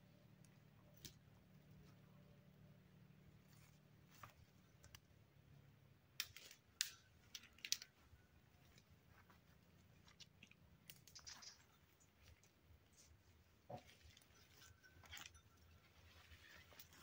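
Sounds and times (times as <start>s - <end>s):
faint low hum: 0.0s - 17.0s
faint clicks and crackles: 3.5s - 5.1s, 6.2s - 17.0s.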